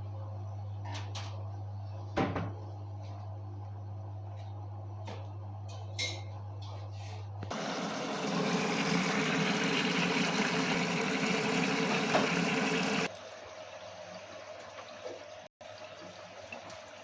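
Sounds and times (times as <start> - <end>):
water rushing into washing machine: 7.5 - 13.1.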